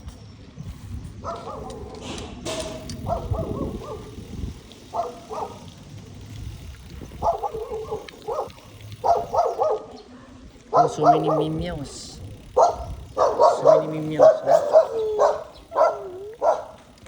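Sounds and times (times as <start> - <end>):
bike rumble: 0.0 - 17.0
dog barking: 1.2 - 2.0, 3.0 - 4.1, 4.9 - 5.7, 7.2 - 10.1, 10.7 - 11.7, 12.6 - 16.9.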